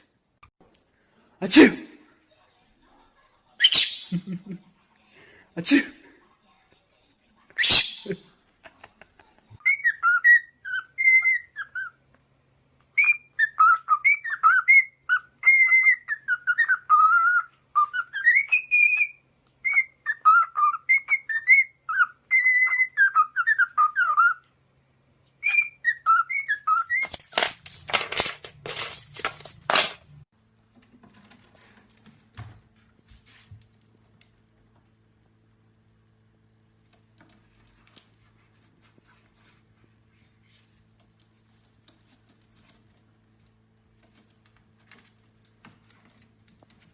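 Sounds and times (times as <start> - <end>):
parrot whistling a tune: 9.6 - 12.0, 13.0 - 24.4, 25.4 - 27.0.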